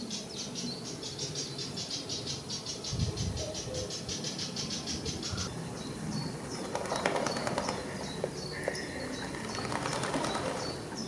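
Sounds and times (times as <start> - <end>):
bird rattling trill: 6.3 - 11.0.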